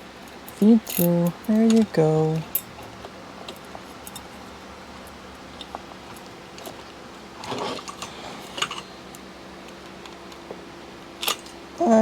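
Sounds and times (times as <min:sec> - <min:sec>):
faint steady hum: 0:00.0 - 0:12.0
scraping rustle: 0:06.7 - 0:08.8.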